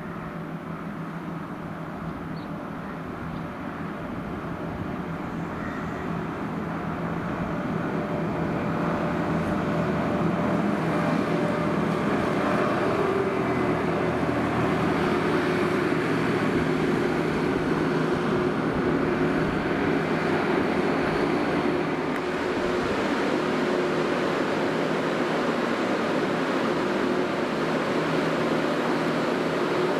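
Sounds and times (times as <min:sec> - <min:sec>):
diesel engine running under load: 0:00.0 - 0:29.9.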